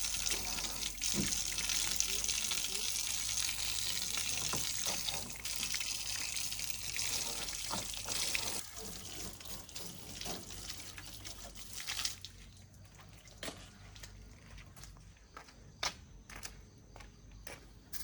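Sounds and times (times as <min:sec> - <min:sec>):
running water hiss: 0:00.0 - 0:13.0.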